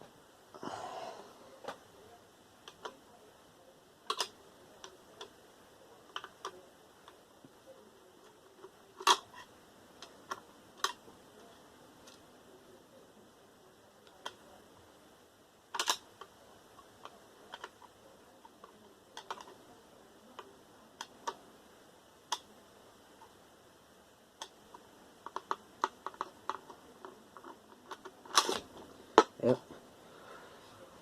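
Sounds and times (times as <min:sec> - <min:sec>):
clicks and taps of computer parts: 0:15.8 - 0:16.0.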